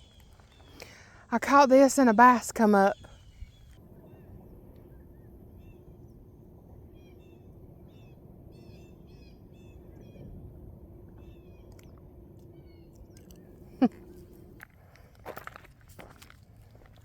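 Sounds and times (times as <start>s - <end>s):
small birds chirping: 0.0s - 1.2s, 1.9s - 4.2s
steady low hum: 0.0s - 17.0s.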